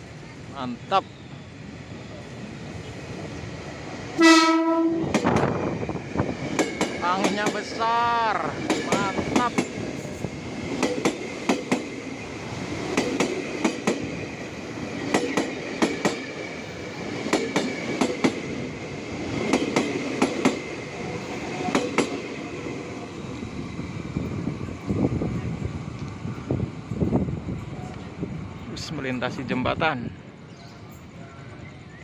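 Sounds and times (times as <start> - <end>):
train rumble: 0.0 - 32.0
train wheels clacking over rail joint: 6.4 - 7.6, 12.9 - 14.1, 17.2 - 18.4.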